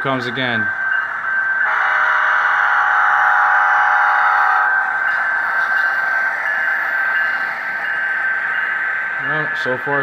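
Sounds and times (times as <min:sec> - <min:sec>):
model train horn chord: 0:01.7 - 0:04.7.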